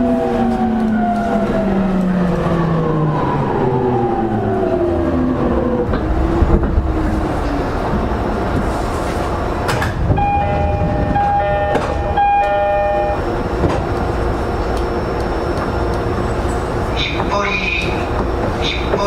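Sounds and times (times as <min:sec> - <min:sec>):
train equipment hum: 0:00.0 - 0:19.0
two-note door chime: 0:10.2 - 0:13.2.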